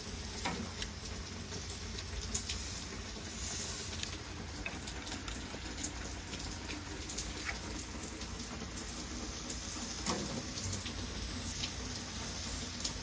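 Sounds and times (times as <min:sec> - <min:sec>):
raindrop ticks: 0:00.0 - 0:13.0
steady rain: 0:00.0 - 0:13.0.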